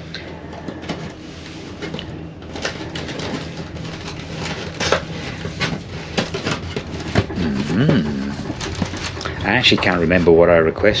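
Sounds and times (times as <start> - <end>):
wrapping rustling: 0.0 - 10.4
items clicking and knocking on tray: 1.8 - 10.4
moving train rumble: 1.9 - 11.0.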